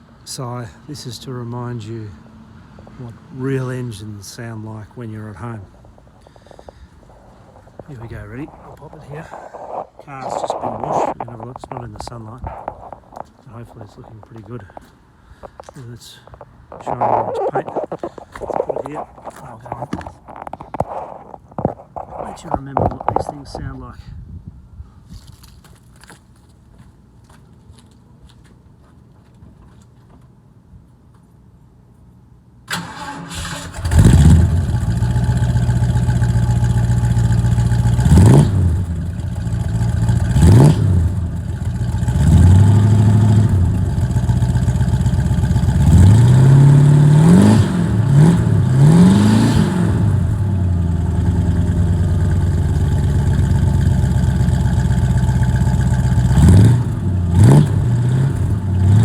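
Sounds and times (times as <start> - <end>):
car engine cranking: 32.7 - 59.0
car engine idling and revving: 32.8 - 59.0.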